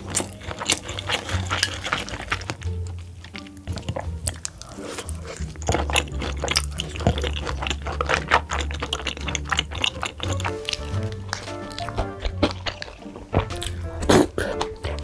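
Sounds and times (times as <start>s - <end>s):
person chewing with crunches: 0.0s - 15.0s.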